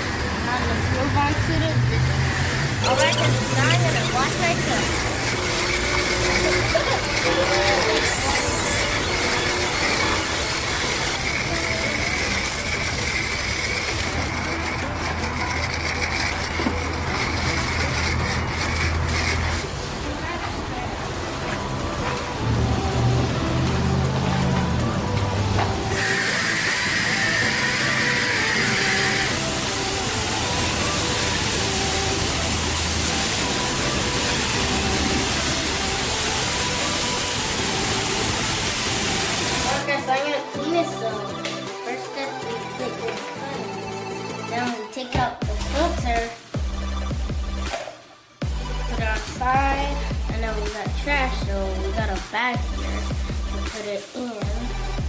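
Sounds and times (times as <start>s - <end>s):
pressure washer spraying water: 0.0s - 20.1s, 21.0s - 40.0s, 52.8s - 55.0s
pump hum: 2.0s - 19.7s.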